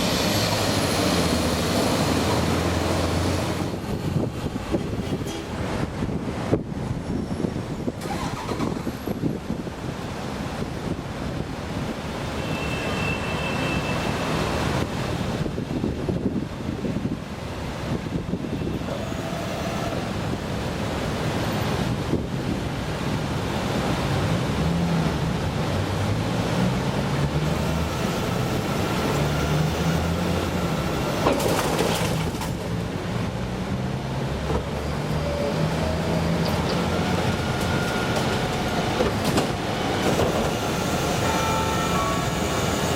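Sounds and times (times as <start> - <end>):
wind noise on microphone: 0.0 - 12.5, 13.8 - 41.4
garbage truck rumble: 18.0 - 42.9.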